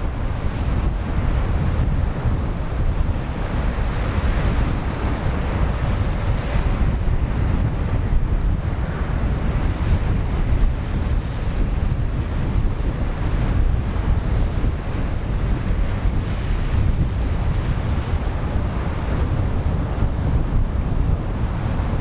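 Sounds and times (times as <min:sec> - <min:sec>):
sea waves washing on shore: 0:00.0 - 0:22.0
wind buffeting microphone: 0:00.0 - 0:22.0.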